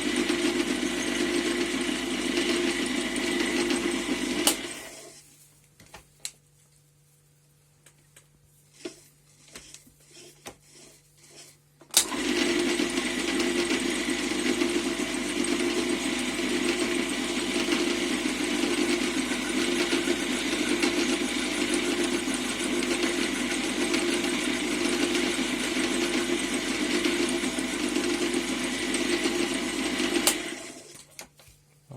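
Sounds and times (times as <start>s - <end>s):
lathe motor droning: 12.0s - 30.9s.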